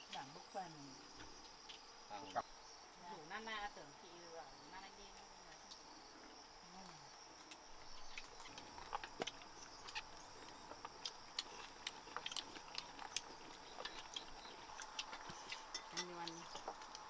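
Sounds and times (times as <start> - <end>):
high insect drone: 0.0 - 17.0
crunchy chewing: 5.6 - 17.0.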